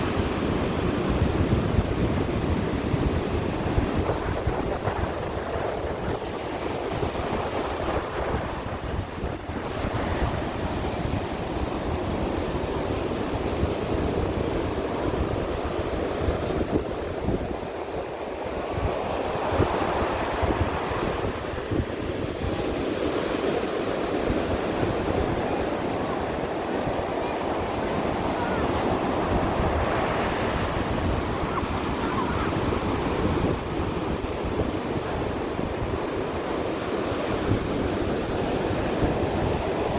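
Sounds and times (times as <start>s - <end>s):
wind buffeting microphone: 0.0s - 23.2s, 24.1s - 39.9s
ocean surf breaking: 25.8s - 39.9s.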